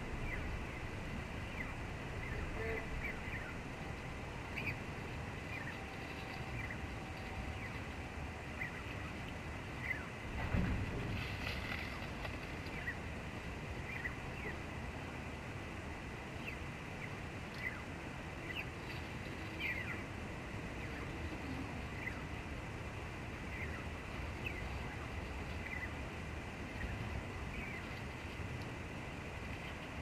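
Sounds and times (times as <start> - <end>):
low rumble: 0.0 - 30.0
sparrows chirping: 4.4 - 10.2, 16.4 - 20.1, 23.4 - 26.0.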